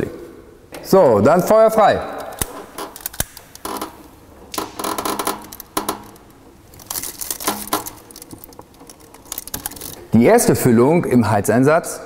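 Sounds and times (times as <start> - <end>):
clicking and clinking at fireplace: 2.3 - 10.1.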